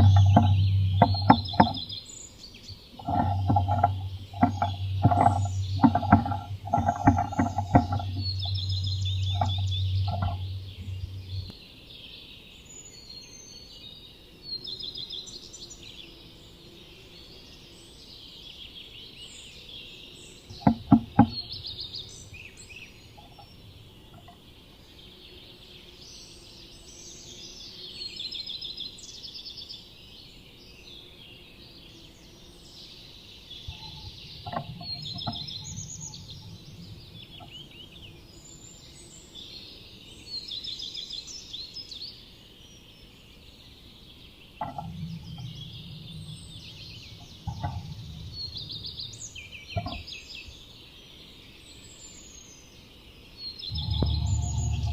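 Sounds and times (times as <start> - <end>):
low hum: 0.0 - 1.9, 3.0 - 11.6, 33.7 - 38.2, 44.6 - 50.0, 53.7 - 54.9
sharp knocks: 0.0 - 1.9, 3.0 - 11.5, 20.5 - 21.7, 33.7 - 37.6, 44.6 - 49.2, 53.7 - 54.9
songbirds singing: 0.0 - 54.9.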